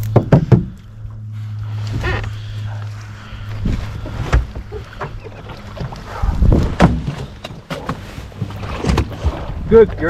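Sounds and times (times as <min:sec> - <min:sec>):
low wind rumble: 0:00.0 - 0:10.0.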